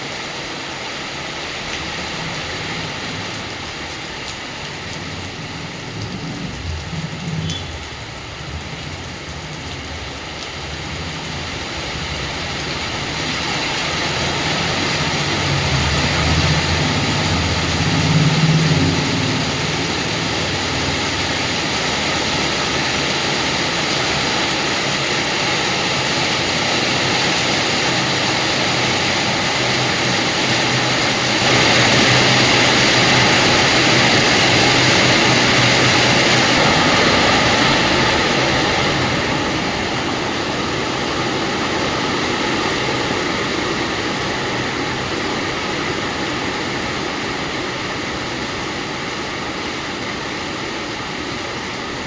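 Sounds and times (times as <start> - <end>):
heavy rain pouring: 0.0 - 52.0.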